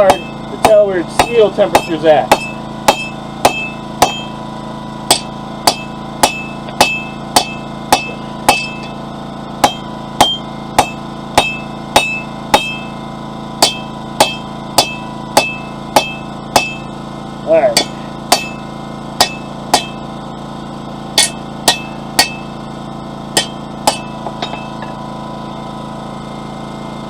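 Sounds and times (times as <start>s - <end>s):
hammer striking steel on anvil: 0.0s - 4.4s, 5.1s - 9.0s, 9.6s - 13.0s, 13.6s - 17.0s, 17.7s - 20.1s, 21.1s - 22.6s, 23.3s - 25.0s
steady hum: 0.0s - 27.0s.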